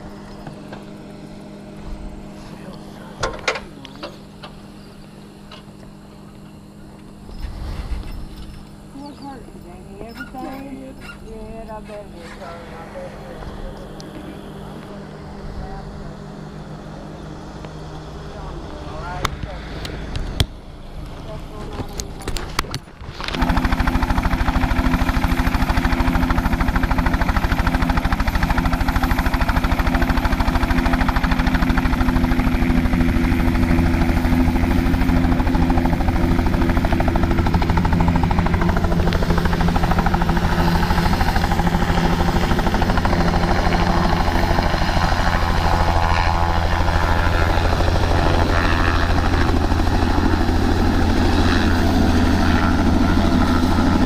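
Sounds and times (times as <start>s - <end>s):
engine running with pulsing hum: 0.0s - 54.0s.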